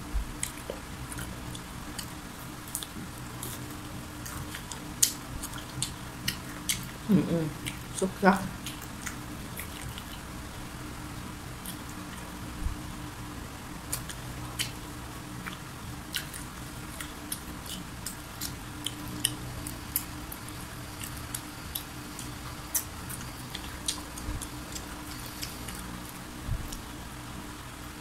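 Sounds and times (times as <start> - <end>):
chewing crispy food: 0.3 - 12.6, 13.7 - 27.0.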